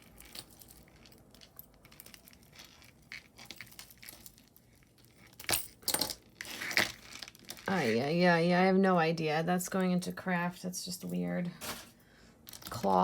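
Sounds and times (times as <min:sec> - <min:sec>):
jewelry rustling and clicking: 0:00.0 - 0:08.0, 0:11.6 - 0:13.0.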